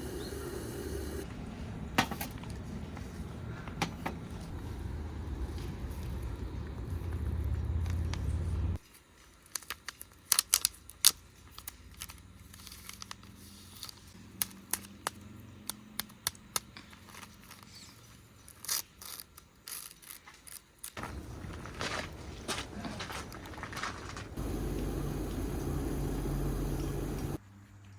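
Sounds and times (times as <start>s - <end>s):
low rumble: 4.5s - 8.8s, 21.0s - 27.4s
small objects clicking and tapping: 9.4s - 17.7s.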